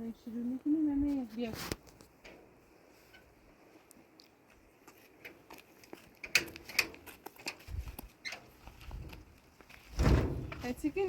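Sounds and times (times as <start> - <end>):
low thud: 9.9 - 10.8.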